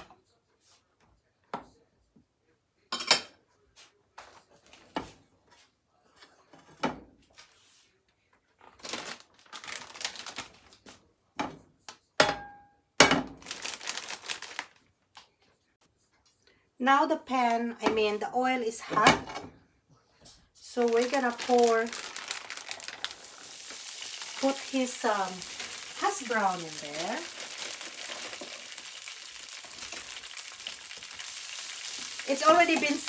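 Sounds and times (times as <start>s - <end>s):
crackly rustling: 13.5s - 14.9s, 20.6s - 33.0s
pans and utensils clinking: 23.0s - 33.0s.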